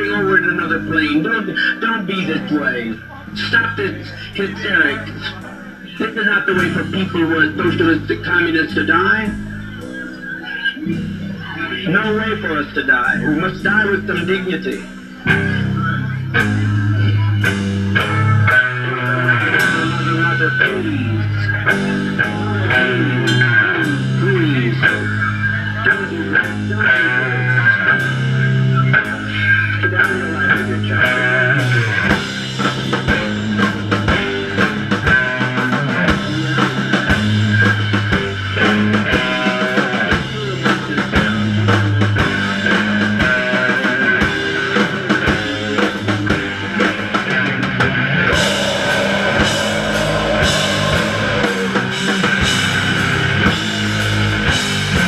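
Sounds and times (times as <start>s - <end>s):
punk band playing live: 0.0s - 55.0s
cymbals: 48.3s - 55.0s.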